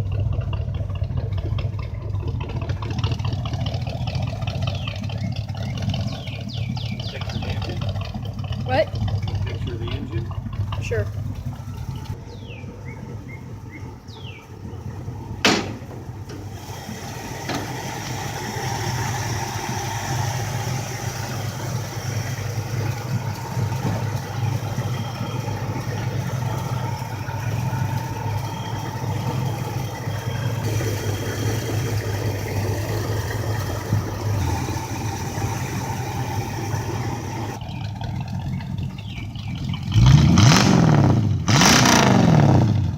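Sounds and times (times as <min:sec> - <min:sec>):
car engine idling: 0:00.0 - 0:42.9
car engine revving: 0:00.0 - 0:42.9
sharp knock: 0:15.4 - 0:15.8.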